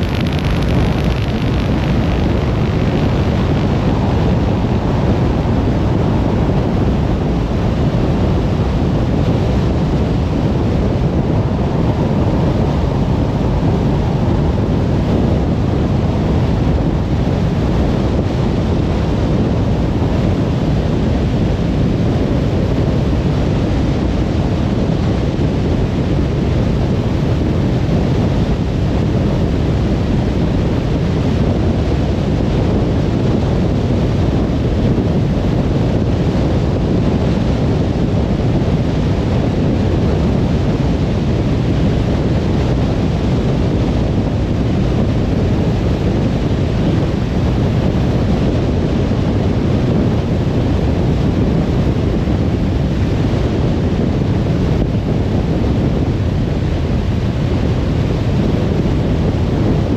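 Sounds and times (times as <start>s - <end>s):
tyre and road noise: 0.0s - 4.6s.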